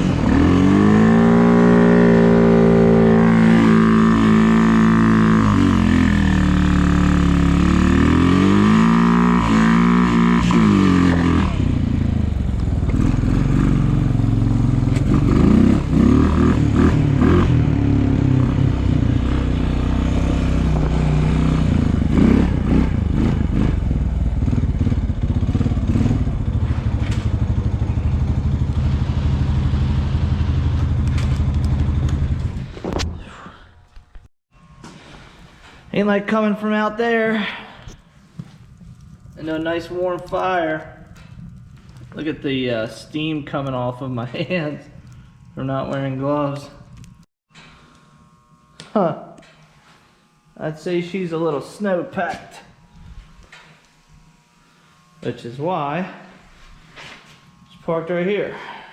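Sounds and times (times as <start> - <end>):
snowplow engine running: 0.0 - 32.7.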